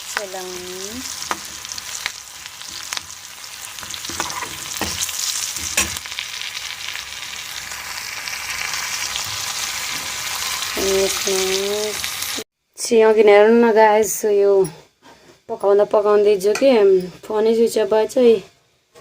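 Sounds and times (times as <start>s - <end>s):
food sizzling in a pan: 0.0s - 12.5s.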